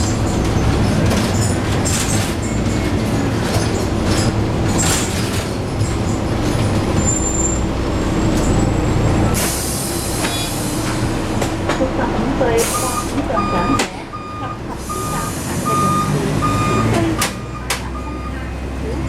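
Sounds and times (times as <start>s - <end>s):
bus body rattling: 0.0s - 18.1s
bus diesel engine running: 0.0s - 19.0s.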